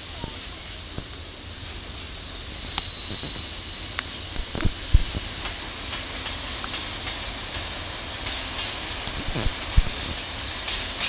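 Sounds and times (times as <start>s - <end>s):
wheel squeal: 2.6s - 6.0s.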